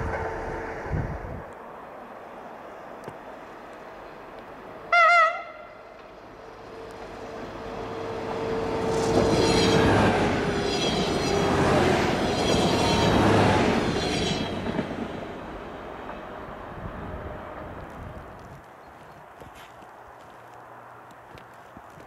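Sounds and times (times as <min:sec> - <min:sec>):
diesel train passing: 0:00.0 - 0:18.5
train horn blast: 0:04.9 - 0:05.9.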